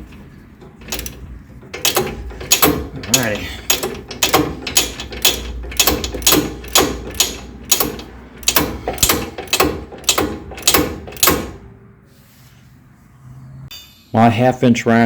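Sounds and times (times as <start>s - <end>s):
hand ratchet clicking: 0.8s - 11.6s.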